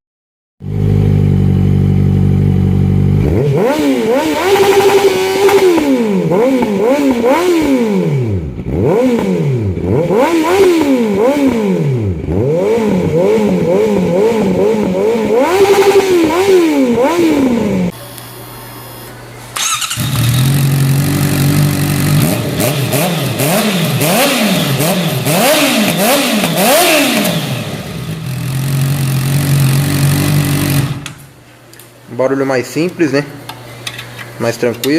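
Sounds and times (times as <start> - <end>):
motorcycle engine revving: 0.6 - 18.0, 19.6 - 31.3
motorcycle engine idling: 19.6 - 25.2, 27.4 - 31.1.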